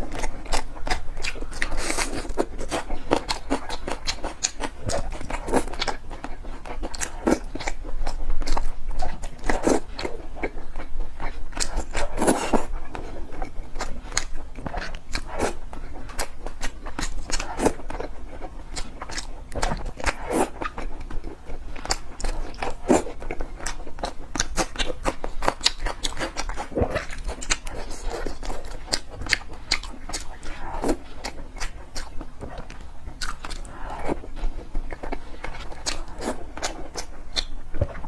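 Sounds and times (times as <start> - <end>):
chewing and biting: 0.0 - 38.0.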